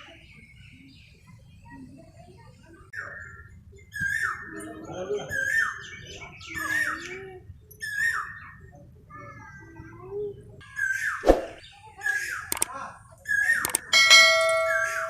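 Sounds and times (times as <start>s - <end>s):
bird calling: 10.6s - 15.0s
sharp click: 12.5s - 12.7s, 13.6s - 13.9s.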